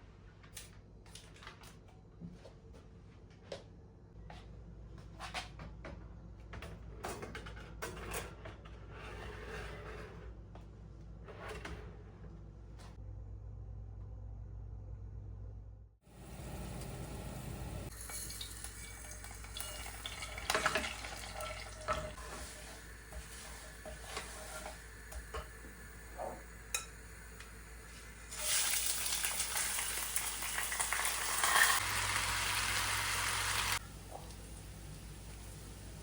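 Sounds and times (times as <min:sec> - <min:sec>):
utensils clinking against pots: 0:17.9 - 0:25.6.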